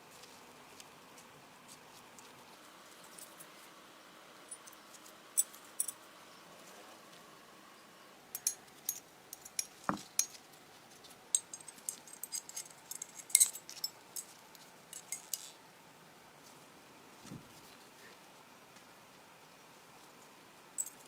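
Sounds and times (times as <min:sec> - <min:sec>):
metal parts clicking and clinking: 0:08.4 - 0:10.4, 0:11.3 - 0:15.6, 0:20.8 - 0:21.0.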